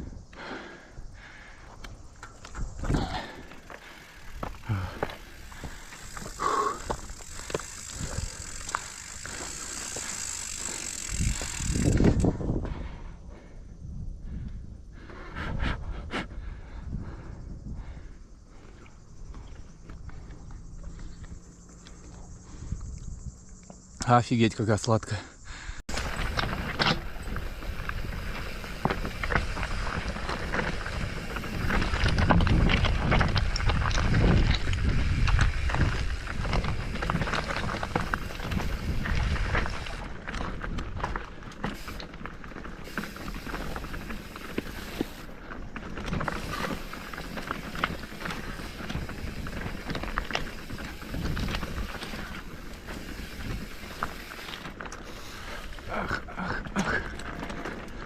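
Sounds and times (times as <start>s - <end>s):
footsteps on trail: 0.2s - 12.8s, 25.8s - 58.0s
wind buffeting microphone: 10.6s - 20.2s, 25.5s - 41.5s, 42.4s - 54.4s.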